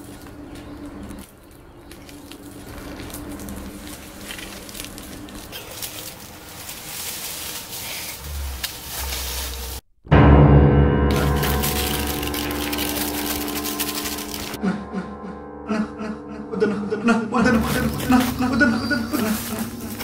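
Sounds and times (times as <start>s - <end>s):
footsteps crunching on dry leaves: 0.0s - 9.8s, 11.1s - 14.6s, 17.5s - 20.0s.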